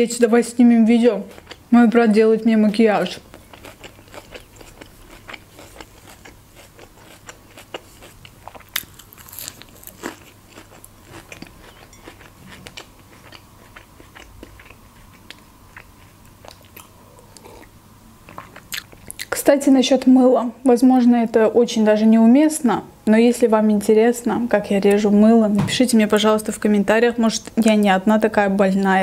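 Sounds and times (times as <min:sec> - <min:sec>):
person chewing crisp food: 0:01.3 - 0:01.7, 0:03.2 - 0:19.3.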